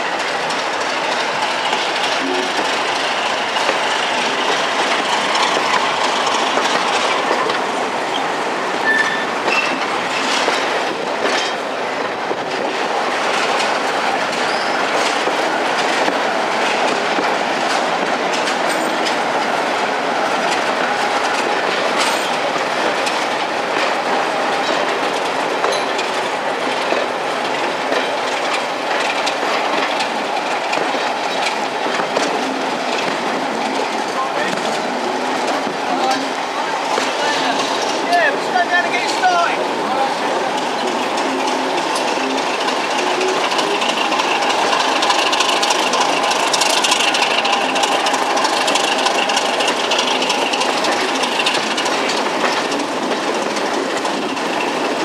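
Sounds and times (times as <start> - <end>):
train wheels clicking over rail joints: 0.0 - 55.0
wheel squeals: 8.8 - 9.8, 14.4 - 14.8.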